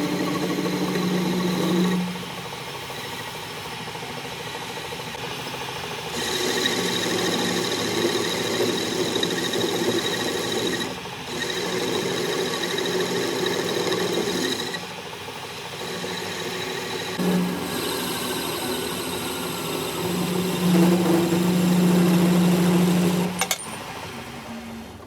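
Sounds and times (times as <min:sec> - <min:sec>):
rough rasping: 0:00.0 - 0:02.3, 0:06.2 - 0:14.8, 0:15.8 - 0:23.4
power tool whining on metal: 0:00.0 - 0:03.3, 0:06.1 - 0:24.9.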